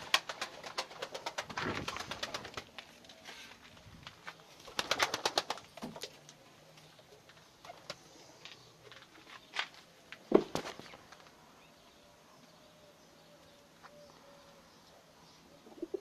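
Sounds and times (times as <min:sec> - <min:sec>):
pigeons cooing: 0:12.7 - 0:16.0.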